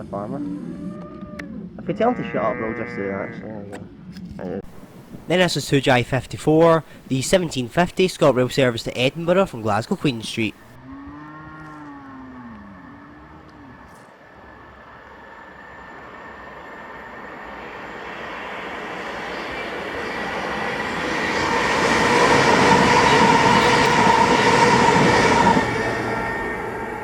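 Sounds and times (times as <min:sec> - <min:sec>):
passenger train passing: 0:04.7 - 0:10.7, 0:14.7 - 0:27.0.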